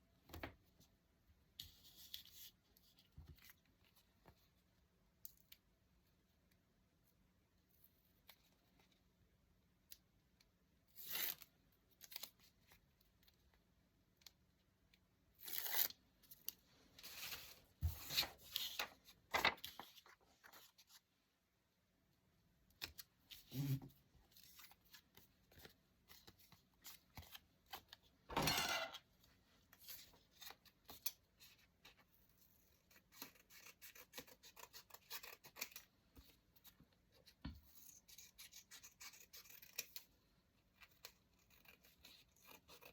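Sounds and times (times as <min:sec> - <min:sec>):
paper rustling: 0:17.0 - 0:21.0
scissors snipping paper: 0:29.8 - 0:36.4, 0:37.2 - 0:42.9.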